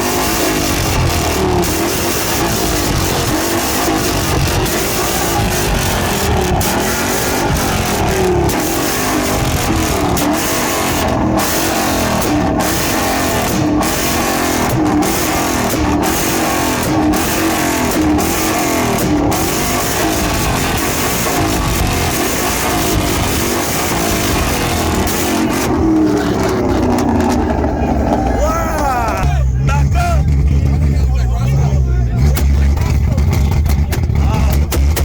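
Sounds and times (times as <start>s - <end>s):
loud car engine: 0.0s - 35.0s.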